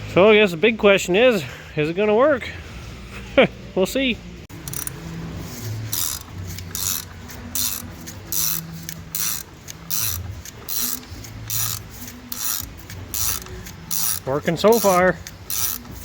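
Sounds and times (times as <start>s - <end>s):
ratchet wrench clicking: 4.5s - 16.0s.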